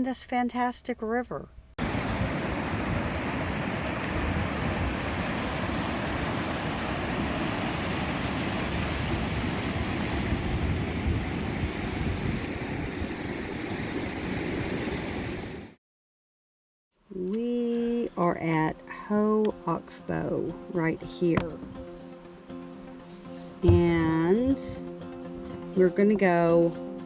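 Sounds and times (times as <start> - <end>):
river rushing: 1.8 - 15.6.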